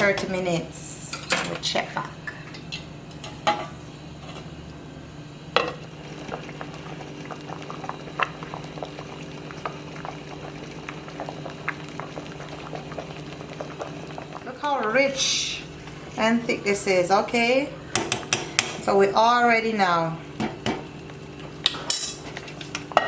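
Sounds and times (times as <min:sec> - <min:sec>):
steady low hum: 0:00.0 - 0:23.0
soup bubbling in a pot: 0:02.0 - 0:19.0.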